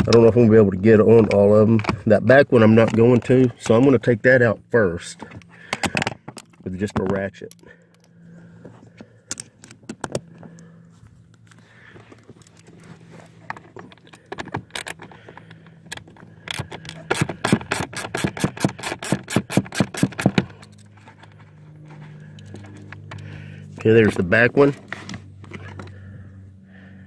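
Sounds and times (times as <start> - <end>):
low hum: 7.4 - 27.0
ratchet clicks: 15.9 - 20.8.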